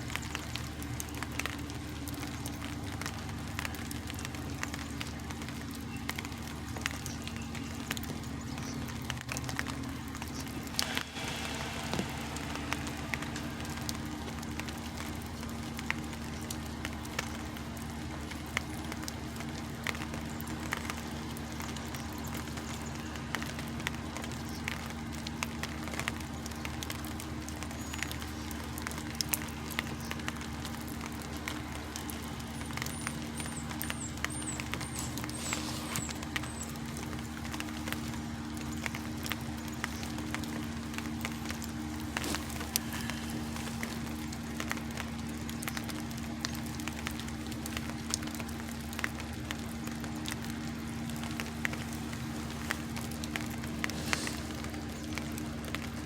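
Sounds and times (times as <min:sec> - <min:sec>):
diesel truck engine idling: 0:07.6 - 0:26.0.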